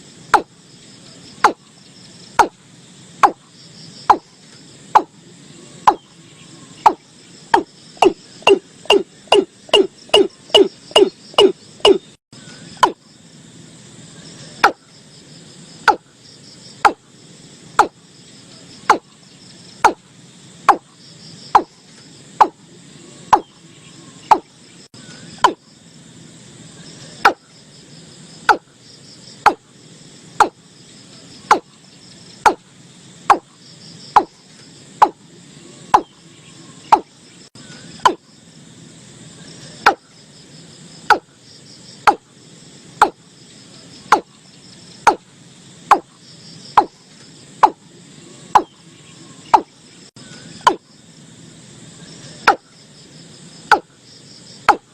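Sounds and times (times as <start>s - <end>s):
insects chirring: 0.0s - 54.9s
bird calling sharp notes: 5.0s - 13.0s, 22.4s - 25.6s.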